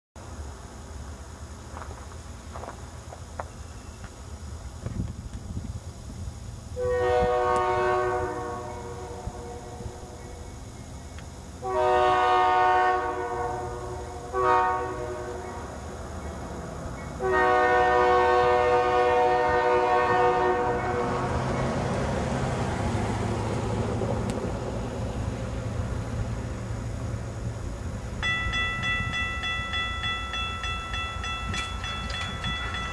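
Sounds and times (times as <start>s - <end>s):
low drone of engines: 0.2s - 29.1s
rumble of approaching train: 0.2s - 32.9s
locomotive air horn: 6.8s - 10.1s, 11.6s - 15.8s, 17.2s - 21.4s.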